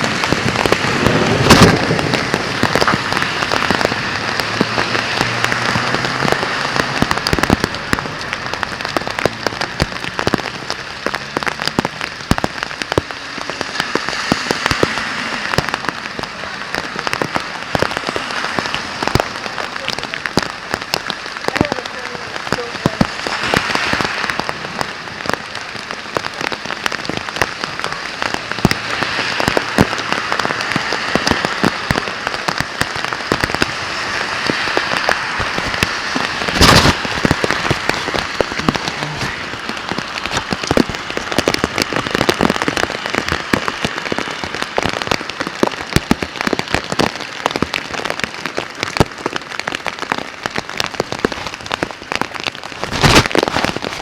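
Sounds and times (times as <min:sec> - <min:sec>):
heavy rain falling: 0:00.0 - 0:54.0
short sharp crack: 0:36.2 - 0:38.0.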